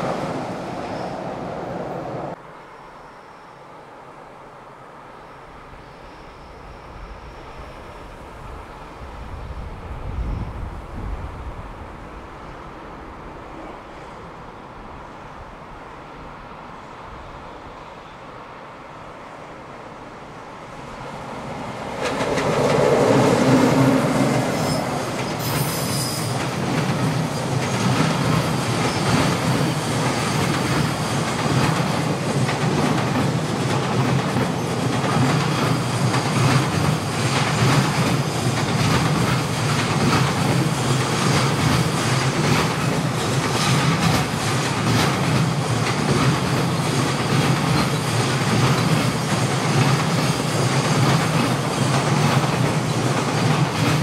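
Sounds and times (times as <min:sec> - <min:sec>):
freight train rushing past: 0:00.0 - 0:54.0
train wheels clattering over rail joints: 0:21.8 - 0:54.0.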